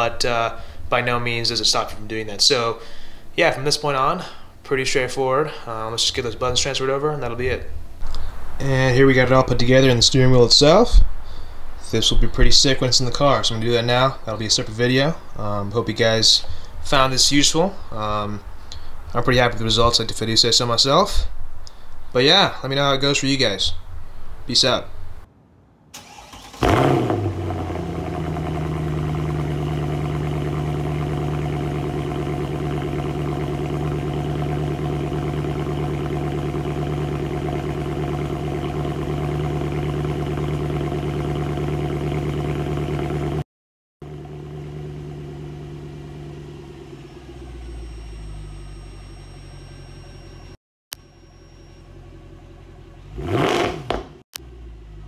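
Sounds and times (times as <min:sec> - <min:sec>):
car engine starting and idling: 0:26.0 - 0:43.4, 0:44.0 - 0:55.0
engine revving: 0:26.0 - 0:43.4, 0:44.0 - 0:50.6, 0:52.0 - 0:55.0.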